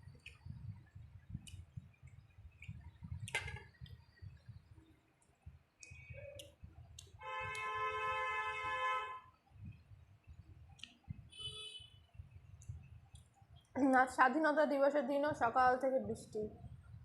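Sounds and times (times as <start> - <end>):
eating food by hand: 1.2 - 4.0.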